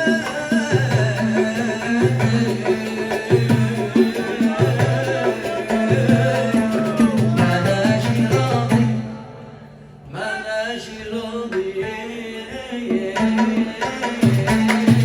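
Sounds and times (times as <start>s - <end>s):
steady percussion: 0.0s - 9.6s, 12.8s - 15.0s.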